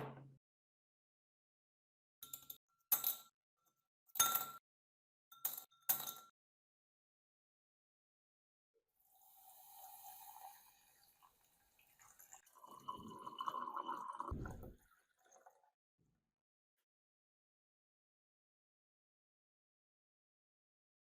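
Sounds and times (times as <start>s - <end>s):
liquid splashing and trickling: 10.3s - 15.7s
dull knock: 14.3s - 14.8s.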